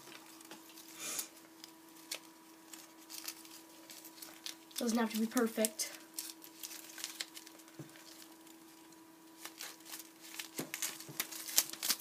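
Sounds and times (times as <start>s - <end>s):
faint steady hum: 0.0s - 12.0s
cardboard and ribbon rustling: 1.6s - 12.0s.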